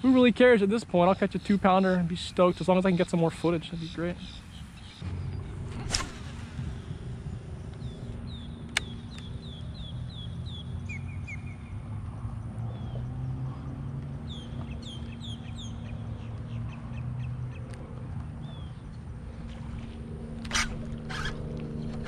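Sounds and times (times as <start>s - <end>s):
steady low rumble: 2.4s - 22.0s
sharp click: 8.7s - 9.3s.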